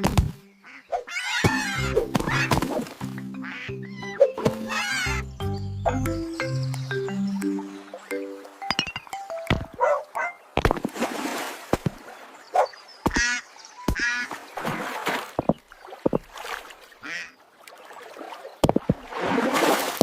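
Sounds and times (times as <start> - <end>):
cartoon duck quacking: 0.6 - 2.6, 3.4 - 5.2.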